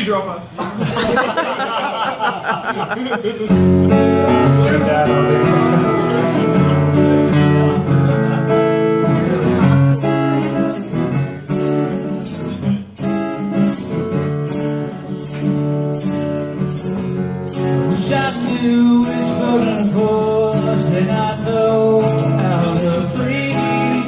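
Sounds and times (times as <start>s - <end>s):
strummed acoustic guitar: 3.4s - 24.0s
tambourine on a steady beat: 9.7s - 24.0s.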